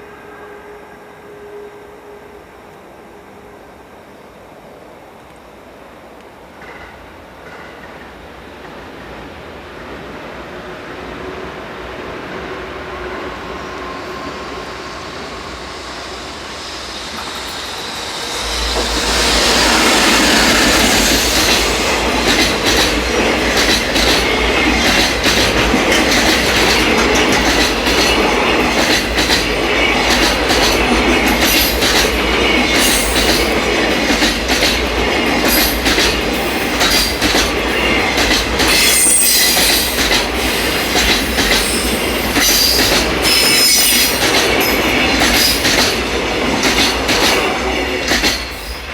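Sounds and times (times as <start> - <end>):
train wheel squeal: 12.6 - 48.9
wagons clattering over rail joints: 21.0 - 38.9.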